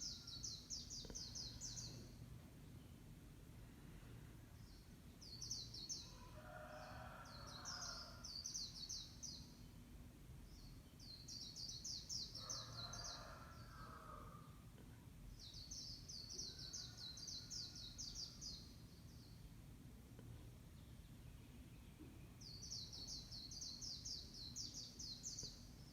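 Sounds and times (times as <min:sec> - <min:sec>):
songbird chattering song: 0:00.0 - 0:03.0.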